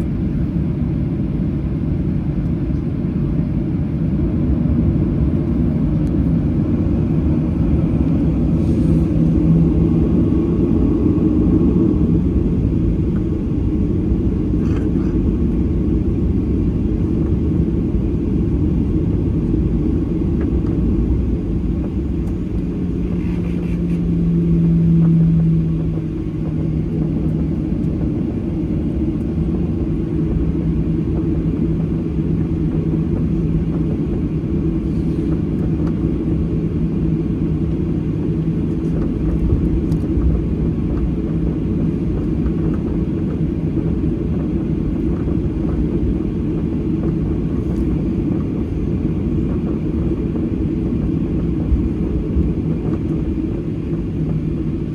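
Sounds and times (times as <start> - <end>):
aircraft cabin engine rumble: 0.0 - 54.9.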